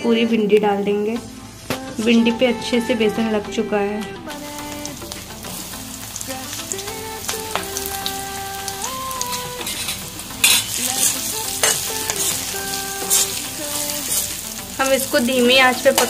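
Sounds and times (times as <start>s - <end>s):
okra sizzling in hot oil: 0.0s - 16.0s
metal spatula scraping pan: 9.6s - 12.4s.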